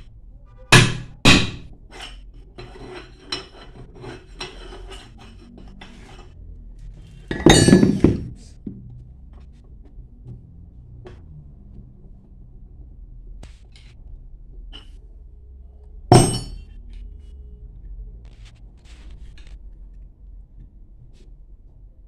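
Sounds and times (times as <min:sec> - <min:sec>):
metal parts clinking: 0:07.3 - 0:08.3.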